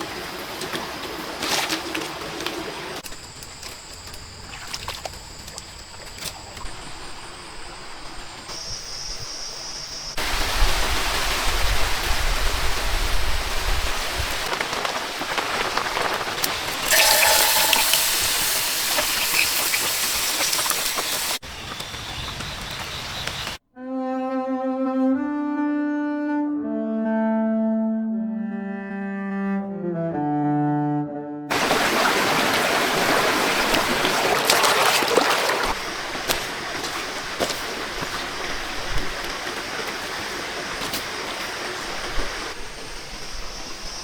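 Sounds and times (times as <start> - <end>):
rain hissing: 10.2 - 23.6, 31.5 - 44.0.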